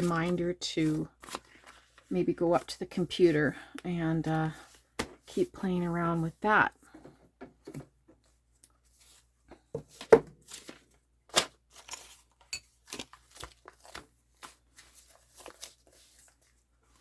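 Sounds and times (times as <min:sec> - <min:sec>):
paper rustling: 0:00.0 - 0:02.1, 0:08.2 - 0:17.0.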